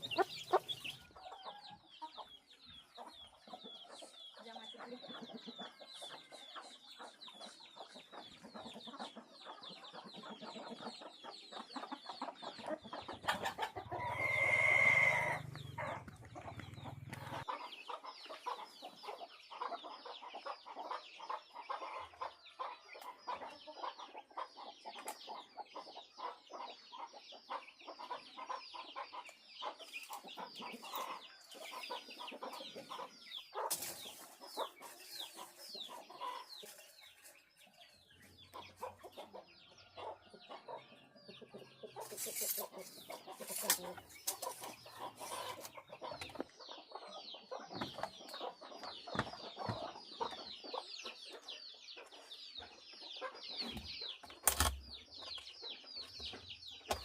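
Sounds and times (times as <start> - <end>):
chickens clucking: 0.0 - 57.0
rooster crowing: 14.0 - 15.5.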